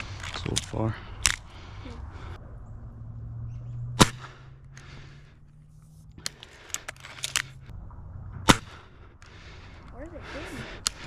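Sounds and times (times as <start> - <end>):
air rifle shots: 3.9 - 4.5, 8.4 - 8.9.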